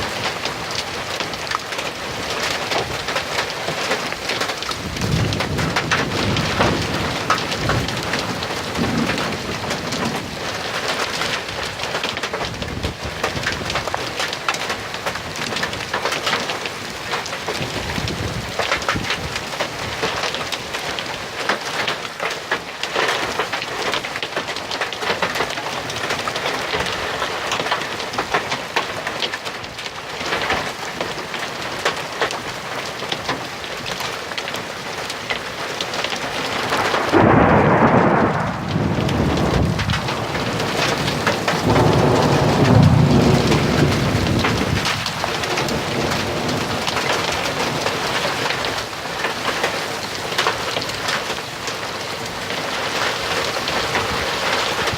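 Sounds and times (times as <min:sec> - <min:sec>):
heavy rain falling: 0:00.0 - 0:54.9
thunder rumbling: 0:04.3 - 0:10.5, 0:36.4 - 0:48.0.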